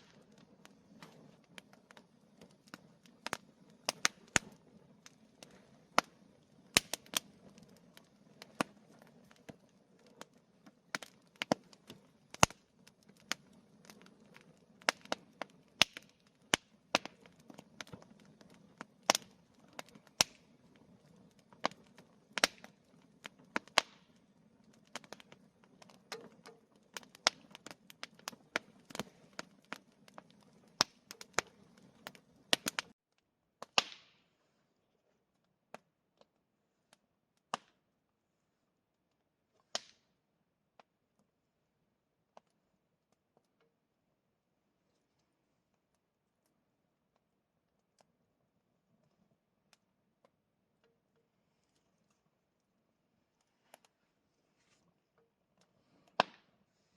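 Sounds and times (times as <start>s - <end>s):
bonfire crackling and popping: 0.0s - 34.3s, 35.3s - 41.2s, 42.2s - 56.9s
low burning background: 0.0s - 56.9s.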